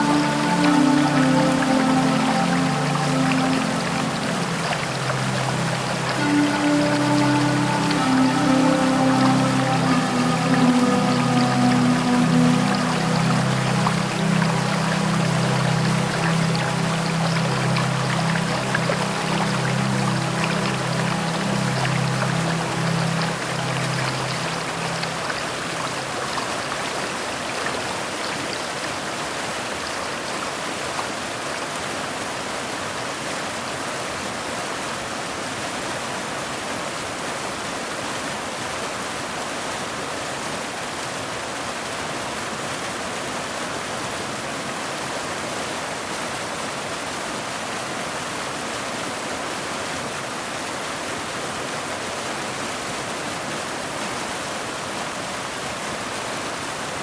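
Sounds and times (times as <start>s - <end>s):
heavy rain hiss: 0.0s - 26.8s.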